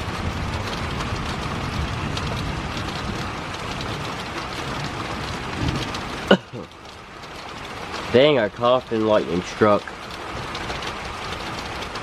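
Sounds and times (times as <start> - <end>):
heavy rain falling: 0.0 - 12.0
person coughing: 6.3 - 6.6.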